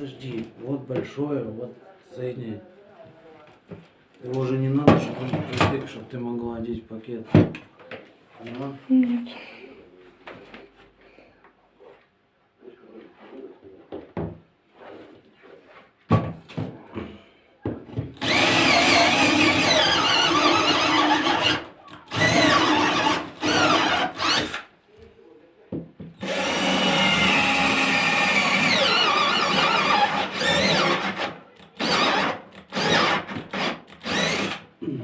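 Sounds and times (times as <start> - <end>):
power tool working wood: 18.2 - 24.6, 26.2 - 34.6.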